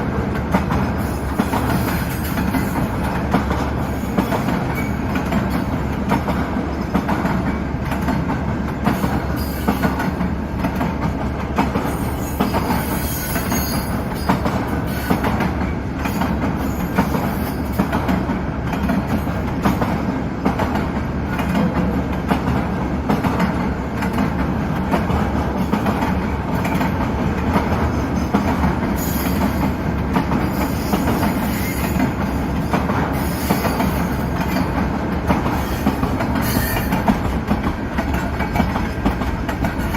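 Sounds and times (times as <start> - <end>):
train wheels clicking over rail joints: 0.0 - 39.9
high-pitched wheel squeal: 35.7 - 37.0.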